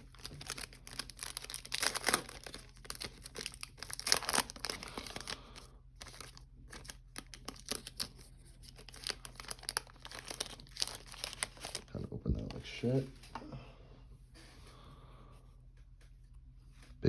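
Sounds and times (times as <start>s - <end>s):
wrapper crinkling and tearing: 0.0s - 12.8s
cards rustling: 0.0s - 13.1s.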